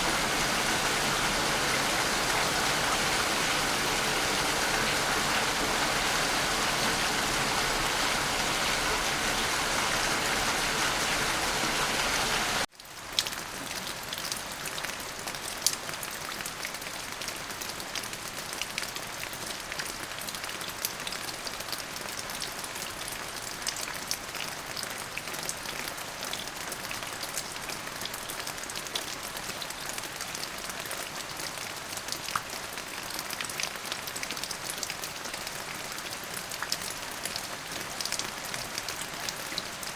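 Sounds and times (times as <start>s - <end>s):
heavy rain downpour: 0.0s - 39.9s.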